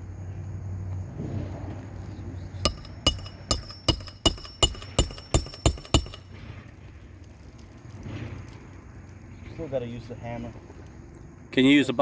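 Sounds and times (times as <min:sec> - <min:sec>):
hammer striking nail: 0:02.7 - 0:06.3.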